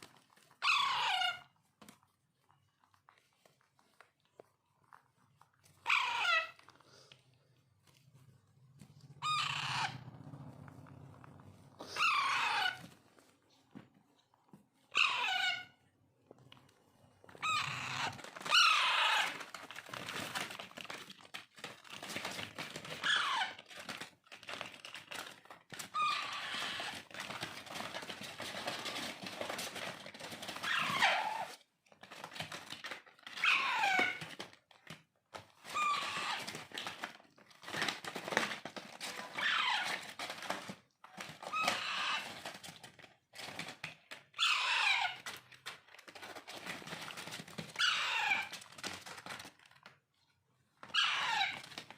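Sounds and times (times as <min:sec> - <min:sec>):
parakeet chicks calling: 0:09.2 - 0:10.0, 0:11.9 - 0:12.8, 0:15.0 - 0:15.7, 0:17.4 - 0:19.4, 0:47.8 - 0:48.5, 0:51.0 - 0:51.6.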